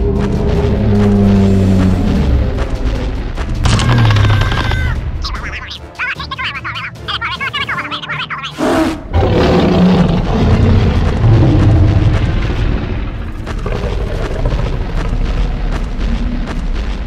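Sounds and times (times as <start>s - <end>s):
deep rumbling sound effect: 0.0s - 4.9s, 9.2s - 17.0s.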